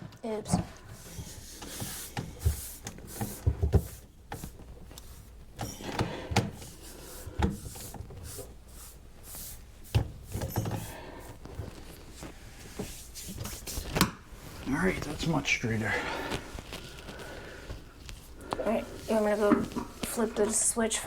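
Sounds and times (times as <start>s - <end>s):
drain pipe parts knocking and scraping: 18.4s - 21.0s.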